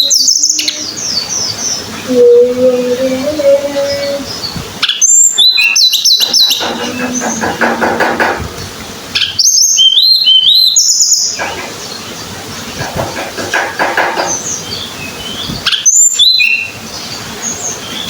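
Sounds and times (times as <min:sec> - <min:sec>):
songbird whistling: 0:04.3 - 0:07.6.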